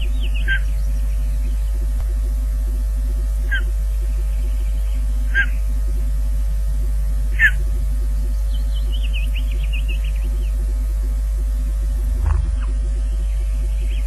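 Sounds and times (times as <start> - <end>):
regular pulsing buzz: 0.0 - 14.0
steady electrical hum: 0.0 - 14.0
downward-sliding bird calls: 0.3 - 0.7, 3.5 - 3.7, 5.3 - 5.6, 7.3 - 7.6, 12.2 - 12.9.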